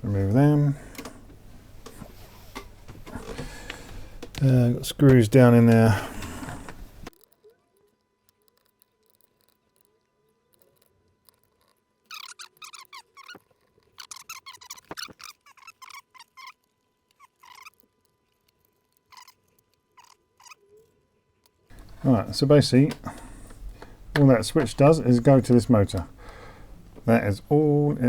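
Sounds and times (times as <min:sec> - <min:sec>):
screws squeaking and scratching: 0:02.2 - 0:20.8.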